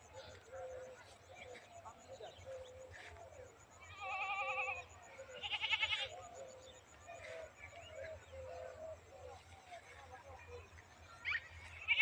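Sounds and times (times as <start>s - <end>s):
faint bird chirps: 0.0s - 12.0s
goat bleating: 3.9s - 6.2s.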